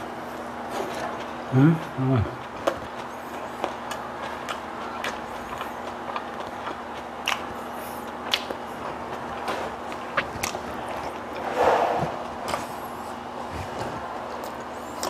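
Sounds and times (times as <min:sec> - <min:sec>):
person chewing flatbread: 0:00.2 - 0:15.0
wet mouth clicks and smacks: 0:07.2 - 0:07.5, 0:08.2 - 0:08.6.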